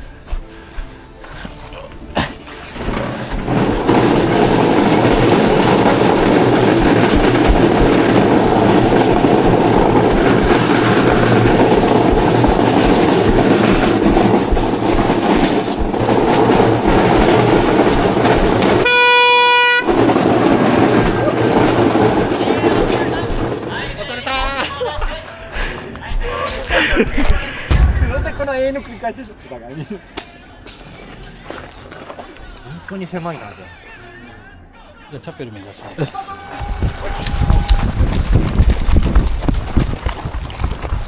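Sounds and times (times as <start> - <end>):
loud rumbling noise: 2.7 - 24.2, 27.1 - 29.0
horn-like beep: 18.8 - 19.9.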